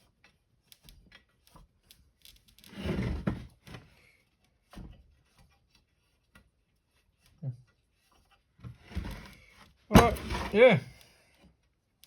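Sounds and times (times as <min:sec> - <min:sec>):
scraping rustle: 0:08.0 - 0:10.9.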